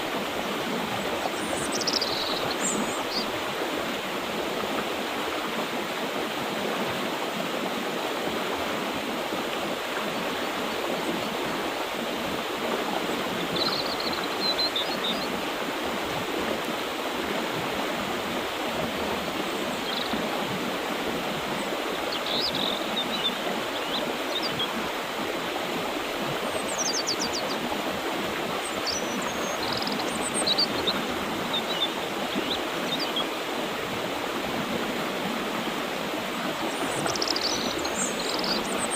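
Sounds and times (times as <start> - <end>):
river water flowing: 0.0 - 38.9
birds chirping: 1.0 - 3.4, 13.4 - 15.4, 21.6 - 24.8, 26.4 - 27.7, 28.6 - 33.3, 36.6 - 38.9.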